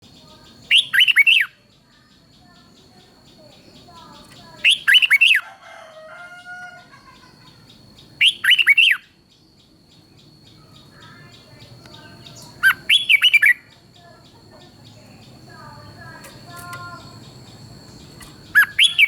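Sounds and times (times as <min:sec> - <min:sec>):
faint bird calls: 0:00.1 - 0:09.2, 0:10.0 - 0:19.0
bird singing whistled phrases: 0:00.6 - 0:01.6, 0:04.6 - 0:05.4, 0:08.2 - 0:09.1, 0:12.1 - 0:13.8, 0:18.4 - 0:19.0.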